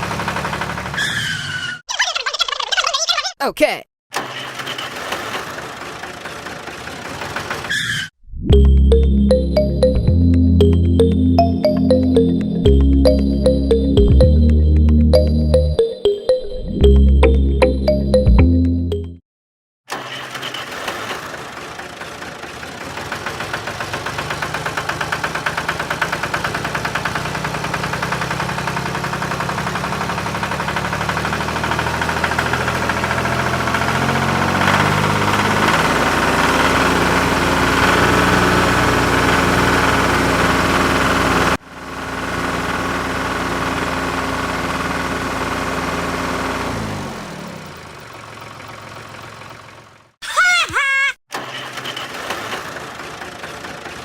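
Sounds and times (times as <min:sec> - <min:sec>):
small engine running: 0:00.0 - 0:01.2, 0:19.9 - 0:49.9, 0:51.4 - 0:54.0.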